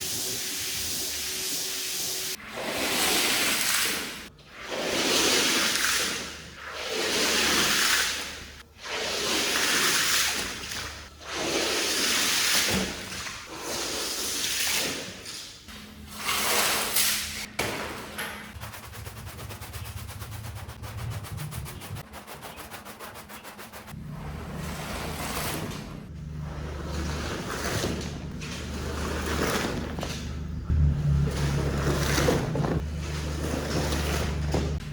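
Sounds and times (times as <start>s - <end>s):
low machine hum: 24.0s - 34.9s.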